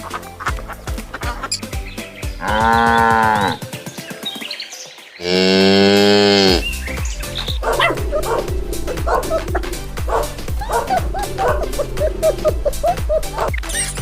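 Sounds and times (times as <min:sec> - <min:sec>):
cow mooing: 0:02.4 - 0:03.6, 0:05.2 - 0:06.7, 0:07.6 - 0:13.5.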